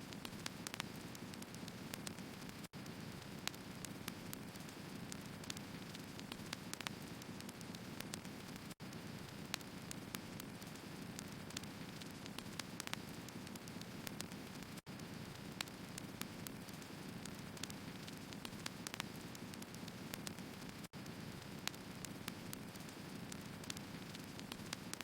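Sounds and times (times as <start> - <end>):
firewood crackling: 0.1 - 25.0.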